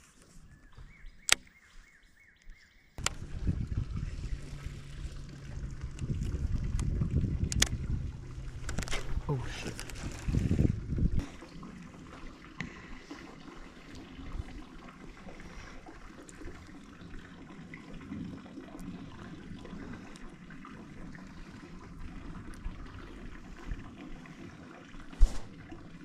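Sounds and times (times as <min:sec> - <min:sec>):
water lapping against boat hull: 0:03.0 - 0:26.0.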